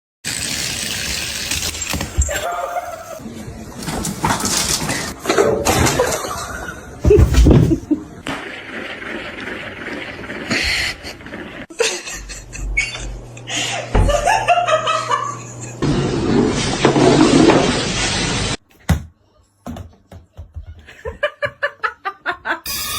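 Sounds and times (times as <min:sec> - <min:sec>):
people laughing: 0:05.9 - 0:08.2, 0:11.7 - 0:15.8, 0:20.7 - 0:22.7
music: 0:22.7 - 0:22.9.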